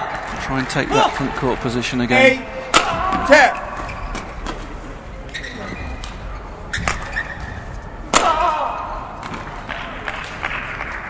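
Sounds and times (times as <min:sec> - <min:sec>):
arena background noise: 0:00.0 - 0:11.0
racket hitting shuttlecock: 0:02.7 - 0:03.3, 0:08.1 - 0:10.9.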